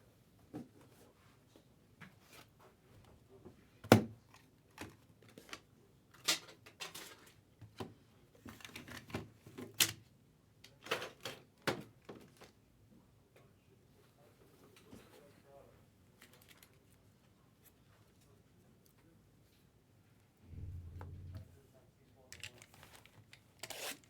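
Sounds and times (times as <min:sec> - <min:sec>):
sharp knock: 0:20.4 - 0:21.7.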